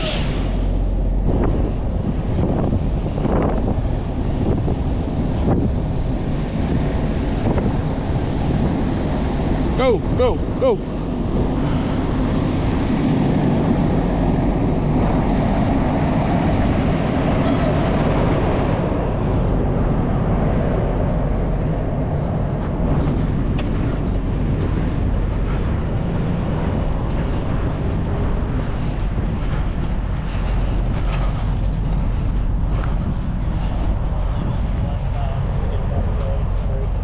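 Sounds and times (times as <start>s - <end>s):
truck engine rumbling: 0.0s - 4.3s, 28.0s - 37.0s
road or wind noise: 0.0s - 37.0s.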